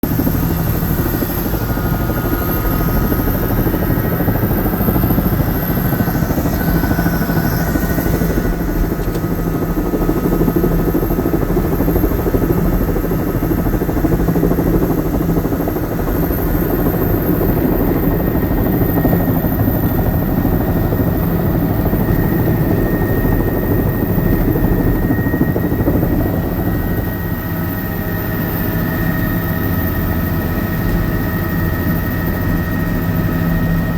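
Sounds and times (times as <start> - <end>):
helicopter rotor and engine drone: 0.0 - 33.9
thin steady whine: 0.1 - 33.9.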